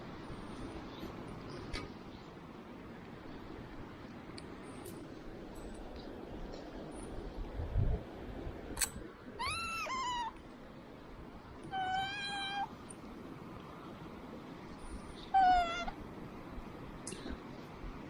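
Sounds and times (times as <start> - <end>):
cat meowing: 9.4 - 10.4, 11.6 - 12.8, 15.3 - 16.0.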